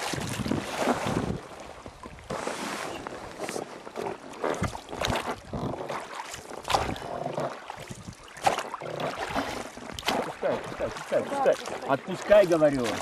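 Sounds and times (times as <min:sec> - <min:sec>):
wind on microphone: 0:00.0 - 0:03.4
water splashing around boat: 0:00.0 - 0:13.0.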